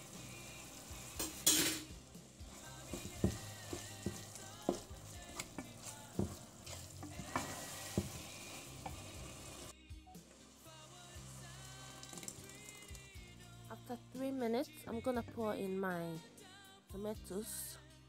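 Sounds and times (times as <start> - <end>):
meat sizzling in a pot: 0.0 - 13.6
spoon knocking and scraping pan: 1.2 - 9.7.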